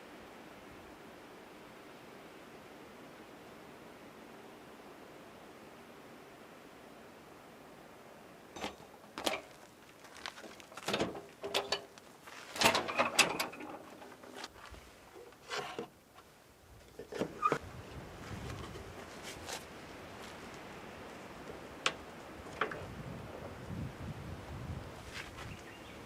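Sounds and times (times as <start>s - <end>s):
faint steady hiss: 0.0s - 26.0s
clicks and rattles of handling: 8.6s - 17.6s.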